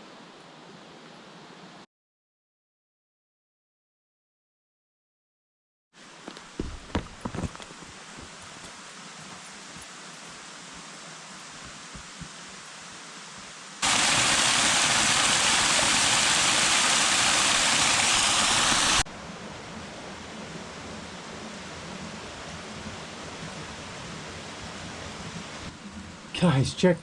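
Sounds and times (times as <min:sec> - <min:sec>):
faint rush of water: 0:06.0 - 0:27.0
waterfall rushing: 0:13.8 - 0:19.0.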